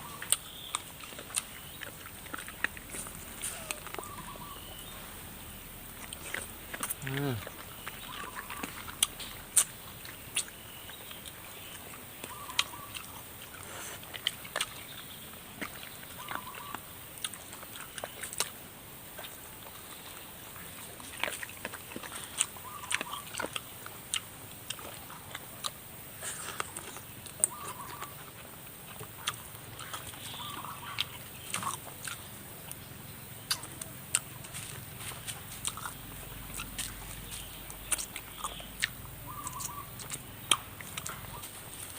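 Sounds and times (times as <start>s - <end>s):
person biting and chewing: 0.1s - 4.3s, 5.9s - 10.6s, 20.8s - 32.8s, 33.4s - 41.9s.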